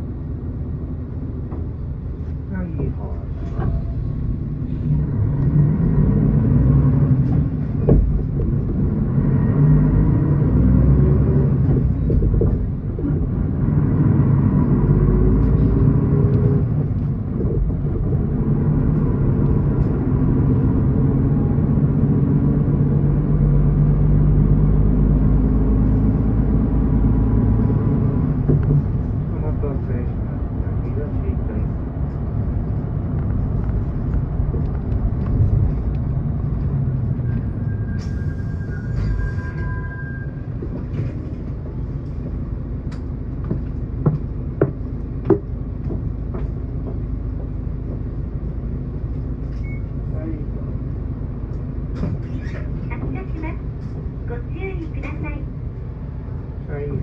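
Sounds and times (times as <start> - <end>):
bus engine rumble: 0.0 - 57.0.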